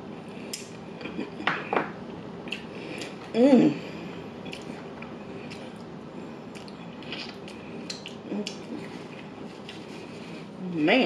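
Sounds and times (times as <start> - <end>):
chewing mouth clicks and smacks: 2.5 - 3.2, 4.4 - 5.9, 6.5 - 9.8.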